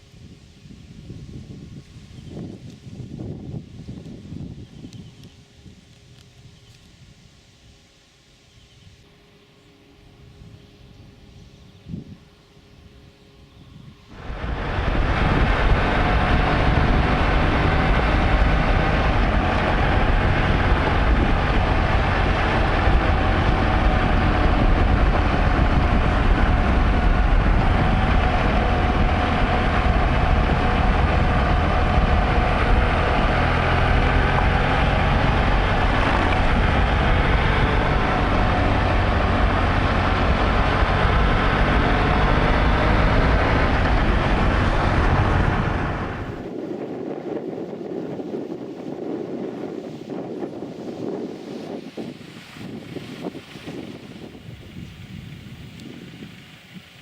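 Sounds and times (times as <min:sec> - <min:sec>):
wind noise: 0:00.0 - 0:57.0
motorcycle engine running: 0:14.1 - 0:46.5.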